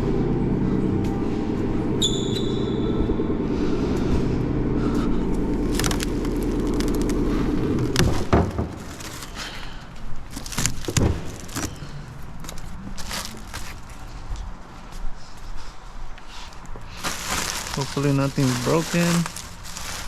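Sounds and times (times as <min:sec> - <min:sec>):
car engine idling: 0:00.0 - 0:14.1
rustling: 0:04.2 - 0:14.4, 0:16.5 - 0:20.0
sharp knocks: 0:08.0 - 0:09.1.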